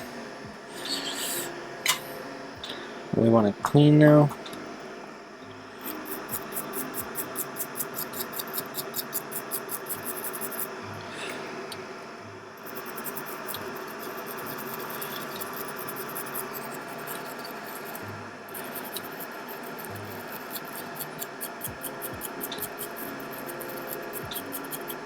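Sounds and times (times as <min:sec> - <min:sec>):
bench equipment hum: 0:00.0 - 0:25.0
solder wick scraping: 0:05.8 - 0:10.7, 0:12.6 - 0:25.0.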